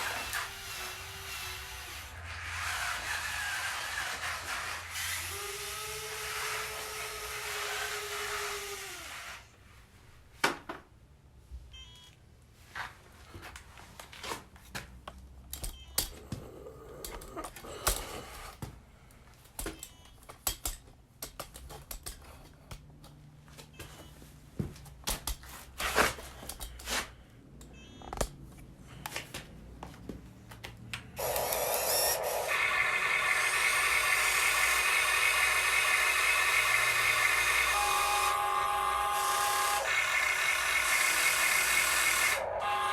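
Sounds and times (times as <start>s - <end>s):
small motor whining: 0.0s - 9.5s, 31.2s - 42.9s
clacks and knocks of model parts: 19.4s - 24.0s, 24.6s - 31.1s.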